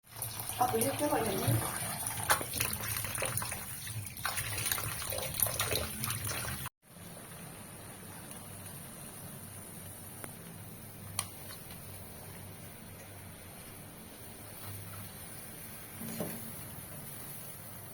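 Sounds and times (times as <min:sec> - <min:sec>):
water running and splashing: 0:00.0 - 0:06.7
room hiss: 0:06.9 - 0:17.9.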